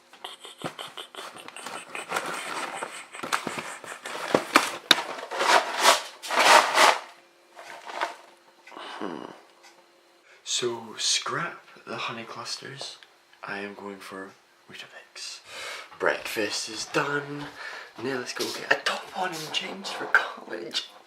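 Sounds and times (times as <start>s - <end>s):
cereal packaging rustling: 2.0s - 8.3s.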